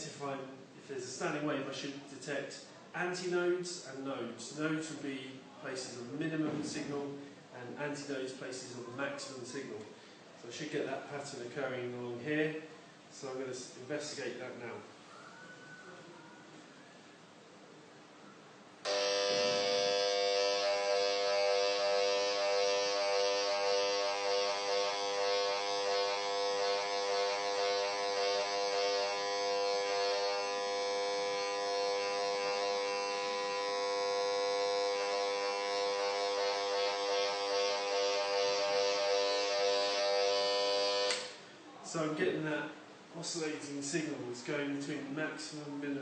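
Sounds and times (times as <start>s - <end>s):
probe speaker buzzing: 18.8s - 41.5s.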